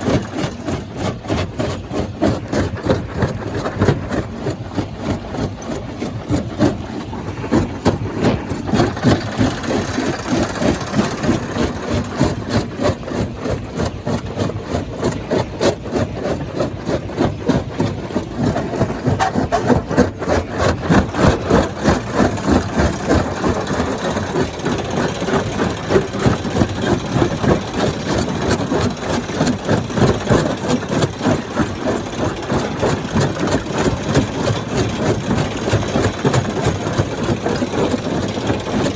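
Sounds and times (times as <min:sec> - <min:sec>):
rapid even pulsing: 0:00.0 - 0:15.5
stone crusher engine drone: 0:00.0 - 0:38.9.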